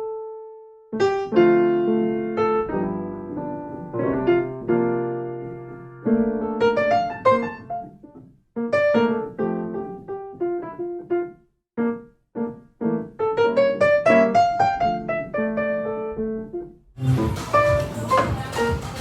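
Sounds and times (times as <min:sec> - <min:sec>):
solo piano keyboard: 0:00.0 - 0:19.0.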